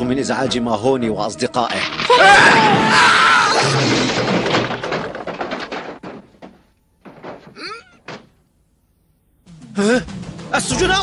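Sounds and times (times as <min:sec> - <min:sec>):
cartoon crash clatter: 0:01.7 - 0:08.3.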